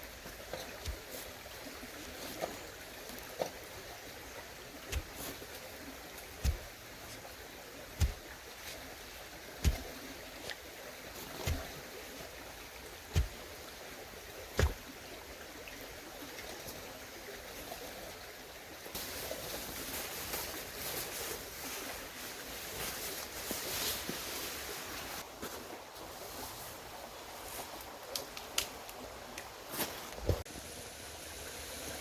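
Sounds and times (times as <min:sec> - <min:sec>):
dull thuds: 0:06.4 - 0:07.2, 0:08.0 - 0:08.3, 0:09.6 - 0:10.0, 0:11.4 - 0:11.8, 0:13.1 - 0:13.4, 0:14.6 - 0:14.8.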